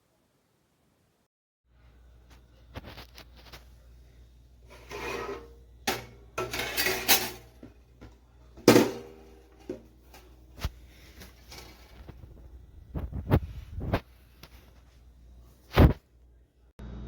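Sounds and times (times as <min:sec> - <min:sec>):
metal kitchenware clattering: 0:04.7 - 0:10.4.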